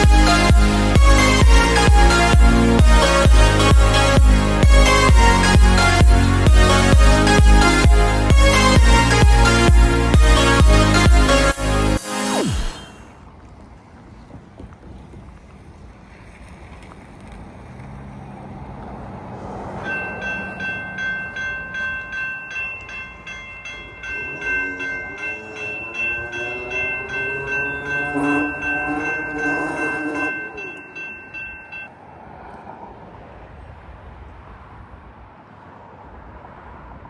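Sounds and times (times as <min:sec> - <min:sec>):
locomotive multi-chime horn: 0:00.0 - 0:13.0, 0:19.8 - 0:31.9
railroad crossing bell ringing: 0:00.0 - 0:13.0, 0:19.8 - 0:32.0
locomotive engine rumble: 0:19.8 - 0:31.9.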